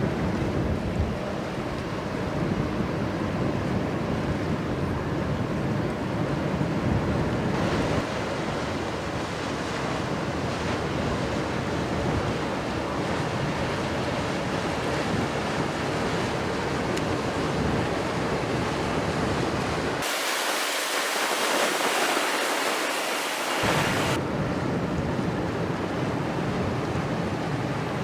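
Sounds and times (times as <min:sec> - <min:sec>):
wind on microphone: 0:00.0 - 0:28.0.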